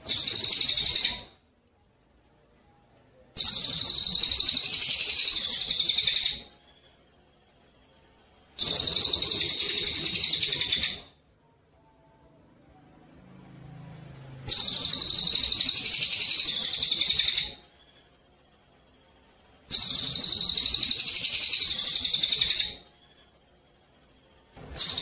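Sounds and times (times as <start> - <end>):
songbird pulsing trill: 2.5 - 11.2, 14.5 - 25.0.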